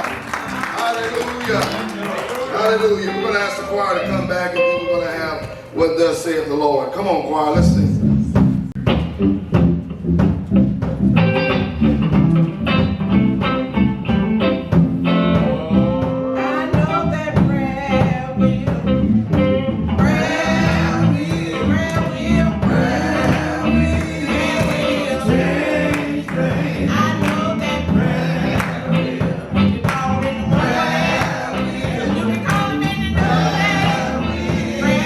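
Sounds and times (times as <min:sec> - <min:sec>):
band with guitar bass and drums: 0:00.0 - 0:05.8, 0:07.6 - 0:35.0
choir singing gospel song: 0:19.8 - 0:35.0.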